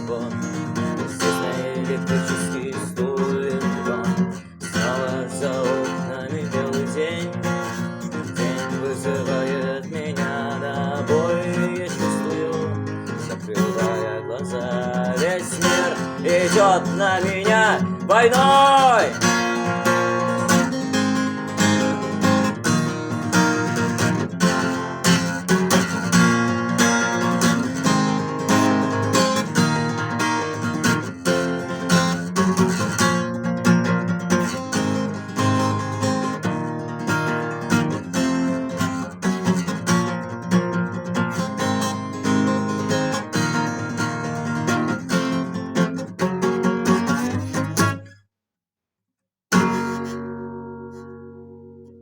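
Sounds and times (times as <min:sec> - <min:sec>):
acoustic guitar strumming chords: 0:00.0 - 0:48.2, 0:49.5 - 0:52.0.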